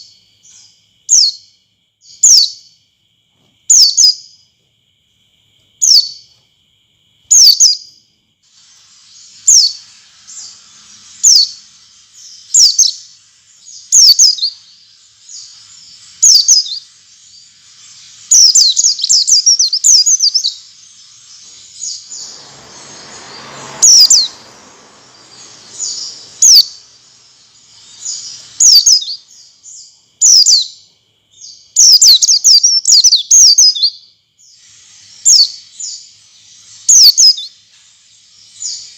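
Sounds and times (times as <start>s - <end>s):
bird chirping and twittering: 0.0s - 2.8s, 3.7s - 4.5s, 5.8s - 6.4s, 7.3s - 38.9s
brief hiss: 8.4s - 16.4s, 17.3s - 29.8s.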